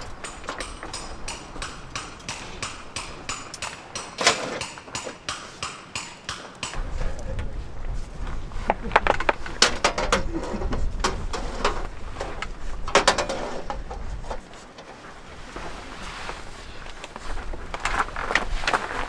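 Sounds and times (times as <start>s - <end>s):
camping gear knocking and clattering: 0.0s - 19.0s
low rumble: 6.8s - 11.1s.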